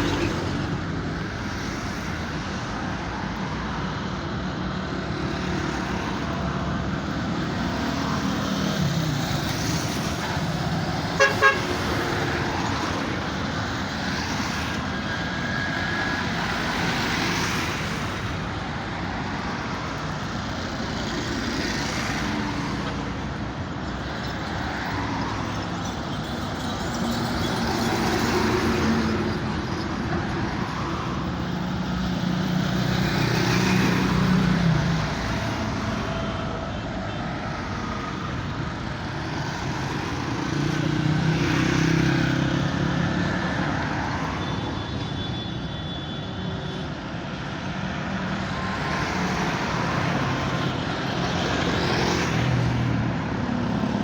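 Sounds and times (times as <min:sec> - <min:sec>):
traffic noise: 0:00.0 - 0:54.0
horn toots: 0:11.2 - 0:11.7.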